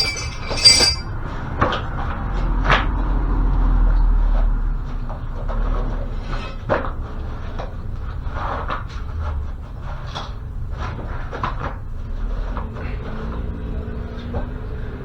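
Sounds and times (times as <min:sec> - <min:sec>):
hand tools clinking on metal: 0:00.0 - 0:01.1.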